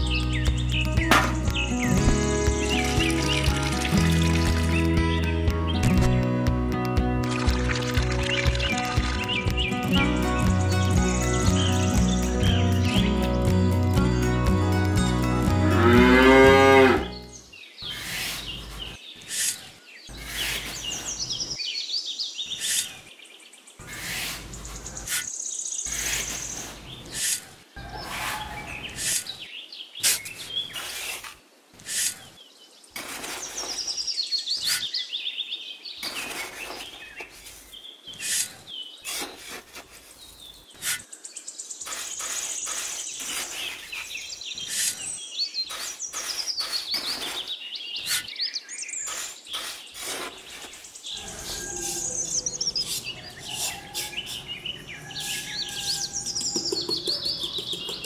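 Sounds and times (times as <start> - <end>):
birds chirping and singing: 0.0 - 6.3, 7.2 - 58.0
trowel scraping and tapping mortar: 56.4 - 58.0.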